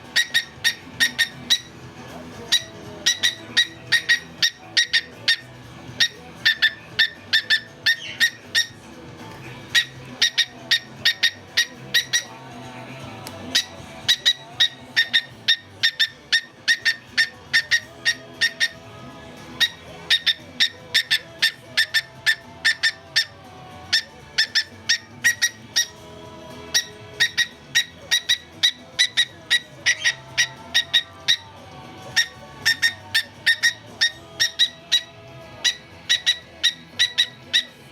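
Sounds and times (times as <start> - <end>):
cockatiel chirping: 0.0 - 1.7, 2.5 - 8.8, 9.7 - 12.4, 13.5 - 18.8, 19.6 - 26.0, 26.7 - 37.9
faint music: 0.0 - 37.9
cockatiel clicking: 13.2 - 18.8.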